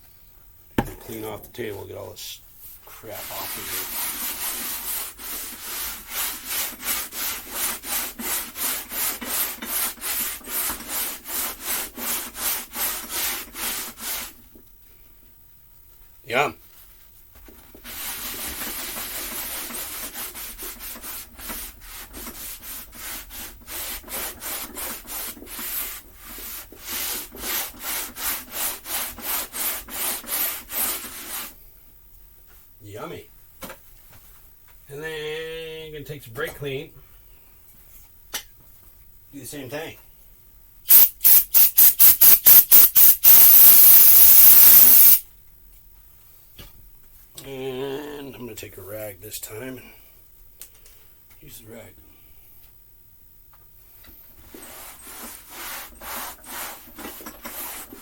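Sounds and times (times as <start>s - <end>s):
scrubbing a table top: 2.7s - 14.4s, 17.7s - 31.6s, 54.4s - 58.0s
aerosol can spraying: 40.9s - 45.2s.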